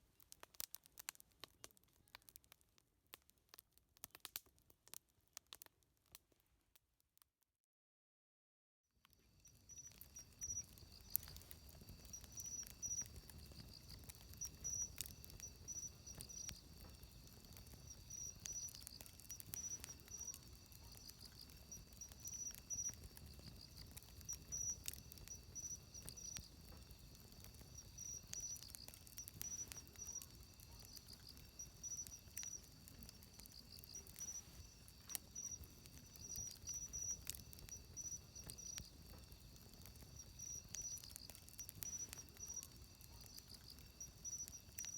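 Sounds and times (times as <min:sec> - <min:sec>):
wood fire crackling: 0:00.0 - 0:06.4, 0:09.2 - 0:44.9
insects chirping: 0:09.3 - 0:44.9.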